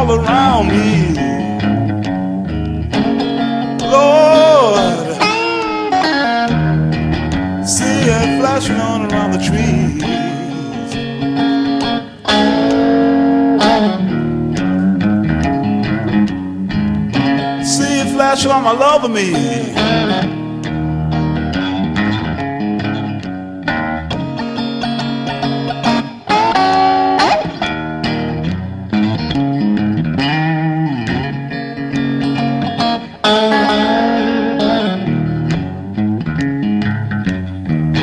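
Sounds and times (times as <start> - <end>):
bass line: 0.0 - 3.2, 6.5 - 11.2
blues band playing: 0.0 - 38.0
electric guitar sustained notes: 0.0 - 38.0.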